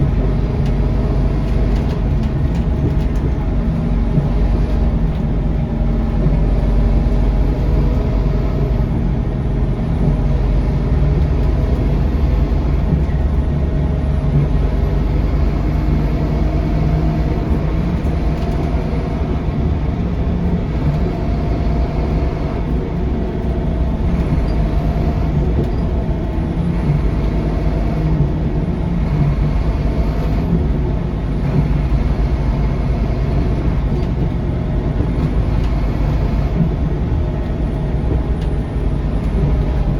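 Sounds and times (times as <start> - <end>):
bus engine rumble from inside: 0.0 - 39.9.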